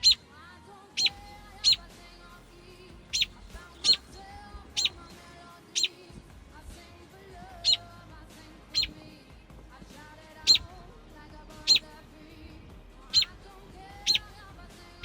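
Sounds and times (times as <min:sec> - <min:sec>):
bird alarm calls: 0:00.0 - 0:00.2, 0:01.0 - 0:01.9, 0:03.0 - 0:06.0, 0:07.6 - 0:07.9, 0:08.7 - 0:09.0, 0:10.4 - 0:10.8, 0:11.6 - 0:11.9, 0:13.1 - 0:13.4, 0:14.0 - 0:14.3.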